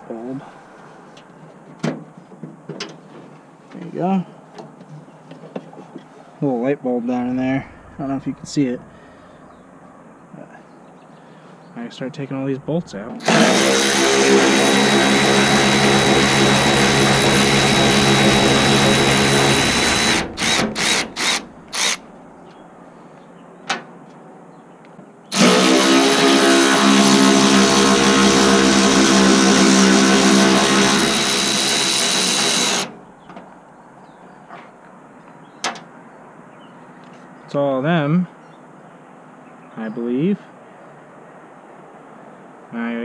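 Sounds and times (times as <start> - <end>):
cordless drill spinning bolts out: 13.2 - 22.0, 25.3 - 32.9.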